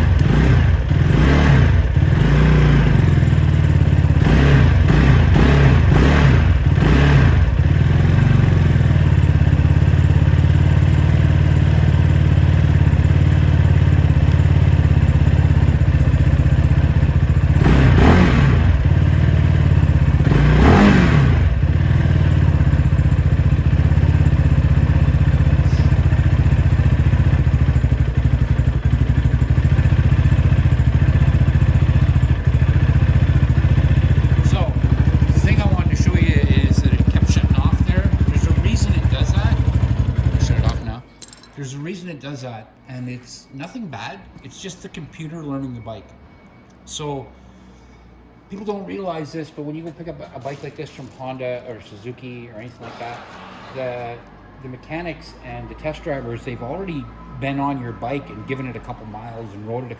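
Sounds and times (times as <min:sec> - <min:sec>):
motorcycle engine idling: 0:00.0 - 0:41.0
motorcycle throttle blips: 0:00.0 - 0:41.3.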